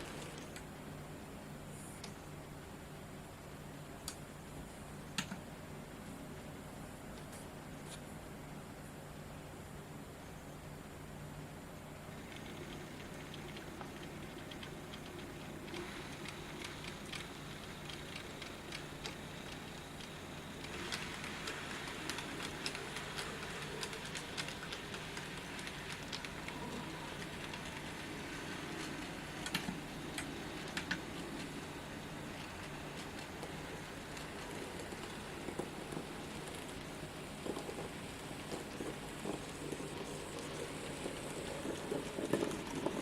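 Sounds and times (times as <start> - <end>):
low steady hum: 0.0 - 43.0
model train wheels clicking: 12.1 - 43.0.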